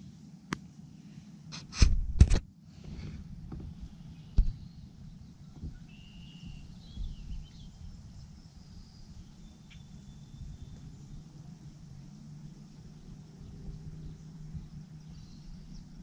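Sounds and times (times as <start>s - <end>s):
wind rumble on microphone: 1.7s - 16.0s
bird calls: 3.9s - 11.2s.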